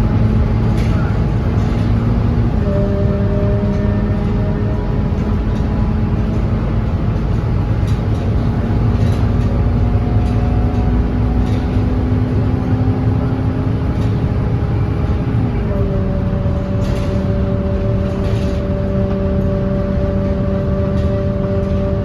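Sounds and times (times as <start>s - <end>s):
bus engine rumble: 0.0s - 22.0s
drivetrain whine: 0.0s - 22.0s.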